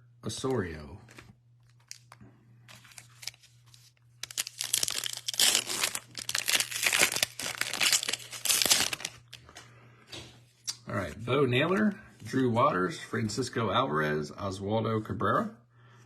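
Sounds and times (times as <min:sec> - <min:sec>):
foil wrapper crackling: 0:02.8 - 0:09.4.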